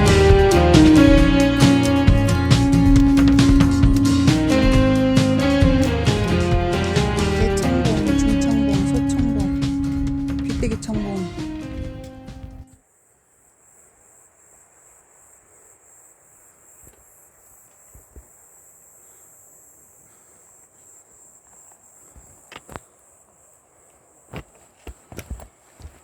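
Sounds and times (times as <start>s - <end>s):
insects chirring: 0.0s - 26.0s
soft knocks: 2.0s - 8.3s.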